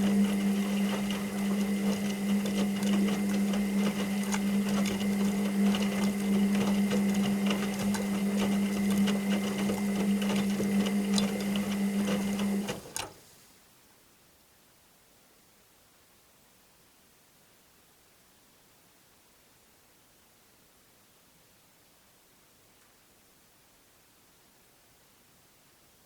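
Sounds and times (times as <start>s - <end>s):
washing machine motor hum: 0.0s - 13.1s.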